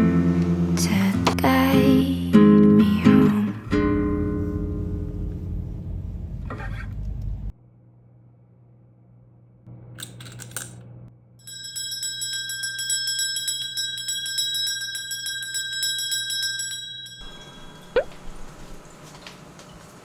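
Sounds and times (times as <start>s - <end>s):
small bell ringing rapidly: 11.4s - 18.8s.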